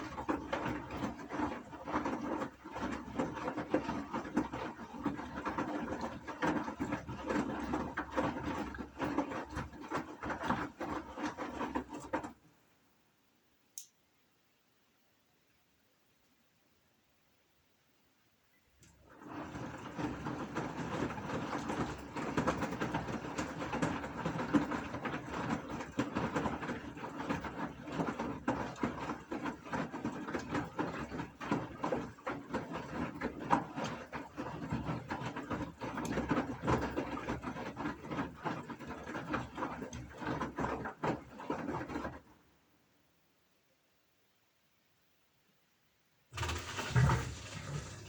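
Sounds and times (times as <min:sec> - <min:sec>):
washing machine rattling: 0:00.0 - 0:12.4, 0:19.0 - 0:42.4, 0:46.3 - 0:48.0.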